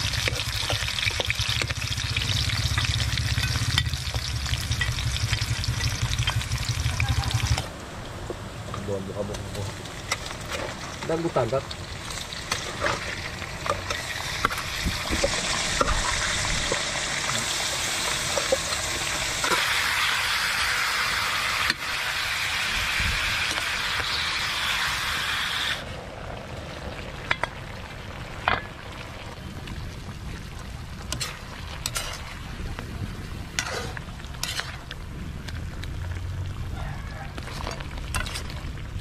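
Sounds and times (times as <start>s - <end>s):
fish sizzling in a wok: 0.0s - 7.7s, 9.7s - 26.4s
spatula clinking and scraping wok: 31.1s - 32.3s, 33.6s - 34.9s.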